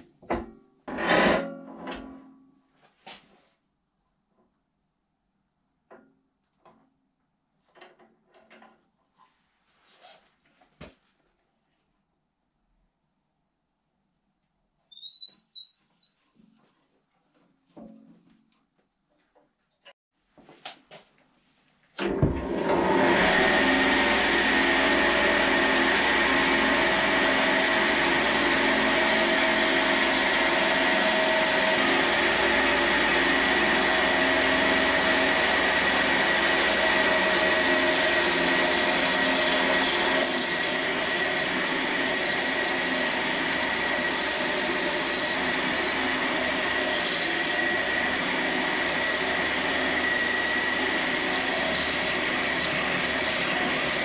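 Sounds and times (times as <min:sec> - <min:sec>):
turning tool cutting wood: 0:22.4 - 0:54.0
wood lathe hum: 0:22.4 - 0:54.0.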